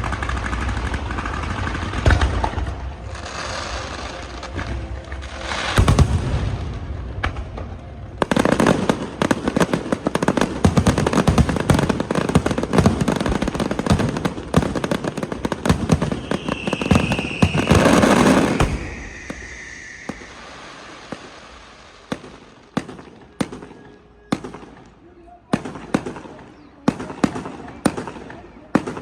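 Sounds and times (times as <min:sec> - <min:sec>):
fireworks crackling: 0:00.0 - 0:29.0
firework whistling: 0:05.2 - 0:06.7, 0:08.2 - 0:24.8
scattered firework pops: 0:07.2 - 0:20.4.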